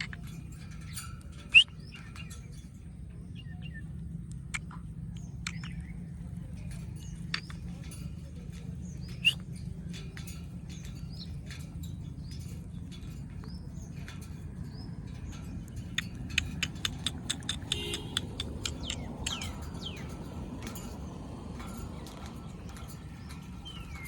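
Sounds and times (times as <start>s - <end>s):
parakeets chirping: 0.0s - 24.0s
steady low hum: 0.0s - 24.0s
sharp clicks: 4.2s - 8.0s, 15.2s - 24.0s.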